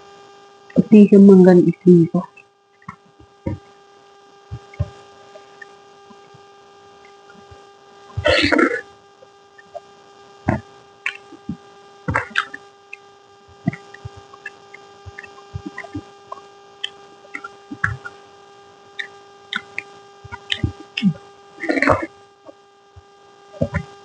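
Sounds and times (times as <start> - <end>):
electrical hum: 0.0 - 24.0
mouth noise: 0.7 - 3.6, 4.5 - 6.4, 7.0 - 8.9, 10.5 - 18.2, 19.0 - 22.6, 23.6 - 24.0
chewing clicks and smacks: 11.1 - 11.4.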